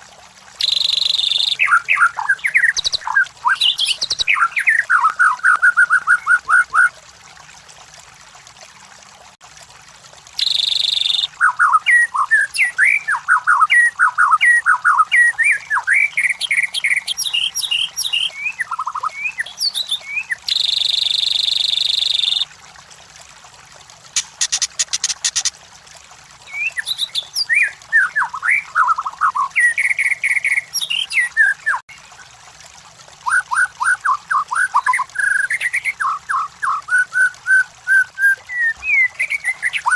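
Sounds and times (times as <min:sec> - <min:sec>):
bird singing whistled notes: 0:00.6 - 0:06.9, 0:10.4 - 0:22.4.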